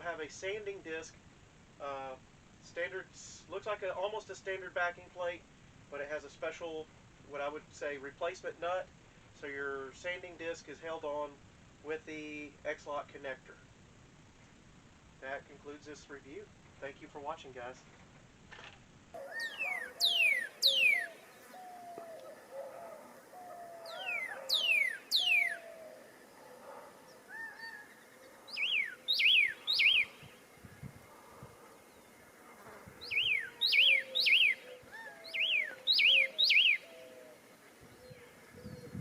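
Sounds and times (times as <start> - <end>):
high whistled bird notes: 19.2 - 22.3, 23.8 - 26.1, 28.5 - 30.8, 33.0 - 37.2
soft low bird warbling: 19.2 - 32.0, 33.0 - 39.0.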